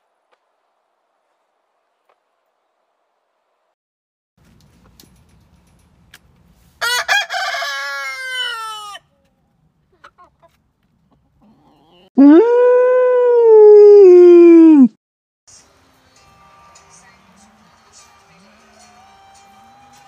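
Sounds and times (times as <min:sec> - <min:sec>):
rooster crowing: 0:06.8 - 0:09.0.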